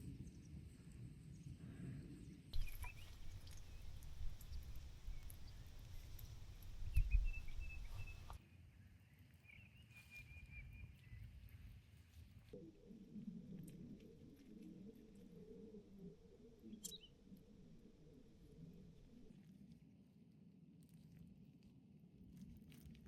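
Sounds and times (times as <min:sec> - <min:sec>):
faint bird chirps: 0:02.6 - 0:08.4, 0:16.6 - 0:17.4
low outdoor rumble: 0:02.6 - 0:08.4.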